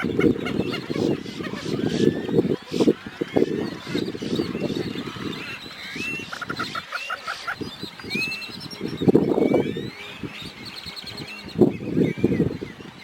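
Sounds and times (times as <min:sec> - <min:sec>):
high bird chirps and whistles: 0:00.0 - 0:12.8
egrets croaking: 0:00.0 - 0:13.0.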